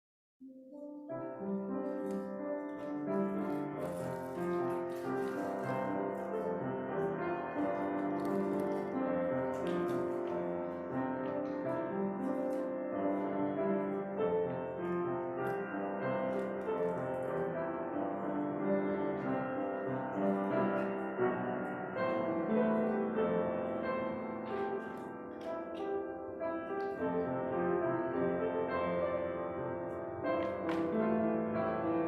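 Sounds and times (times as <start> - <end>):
instrumental piano music: 0.4 - 32.0.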